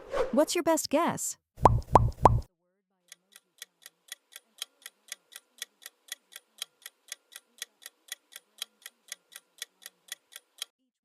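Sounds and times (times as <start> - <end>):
timer ticking: 1.6 - 2.5, 3.1 - 10.7.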